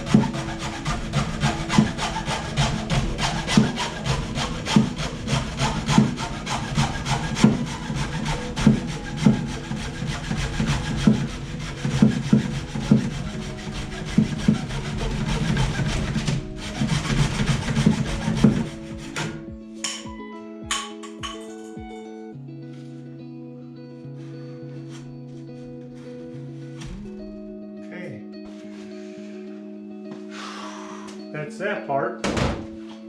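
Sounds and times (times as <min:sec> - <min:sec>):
hand saw cutting: 0:00.0 - 0:20.0.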